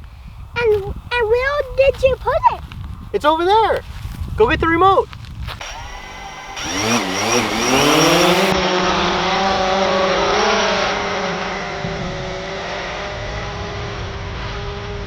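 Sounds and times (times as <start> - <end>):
drone propellers buzzing: 5.6 - 8.6.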